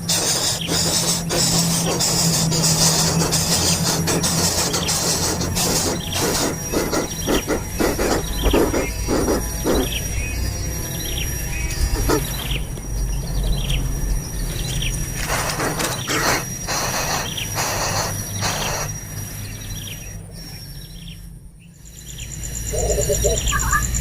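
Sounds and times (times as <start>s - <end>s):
harsh rasping bird calls: 0.0s - 24.0s
bird chirps: 0.1s - 24.0s
steady low rumble: 5.3s - 15.3s
thin high-pitched tone: 22.7s - 24.0s.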